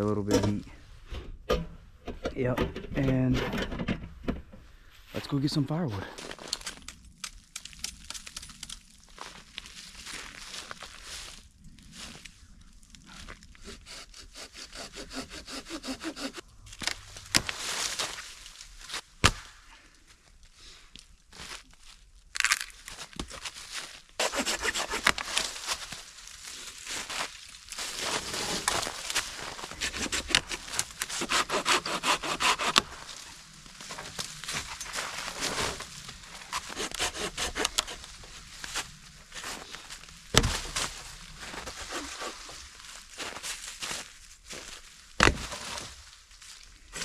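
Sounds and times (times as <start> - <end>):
hand saw cutting wood: 13.6 - 16.4, 24.2 - 25.4, 29.5 - 33.0, 36.5 - 38.1.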